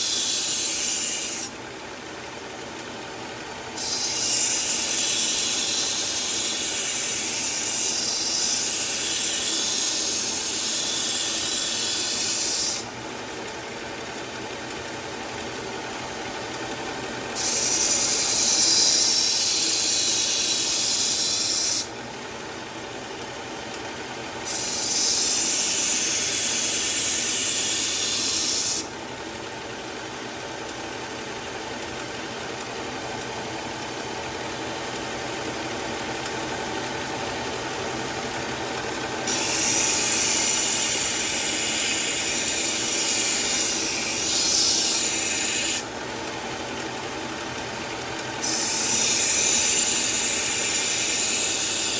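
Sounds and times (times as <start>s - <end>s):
knife sharpener grinding: 0.0s - 1.5s, 3.8s - 12.9s, 17.3s - 21.9s, 24.4s - 28.9s, 39.2s - 45.9s, 48.4s - 51.9s
steady machine hum: 0.0s - 51.9s.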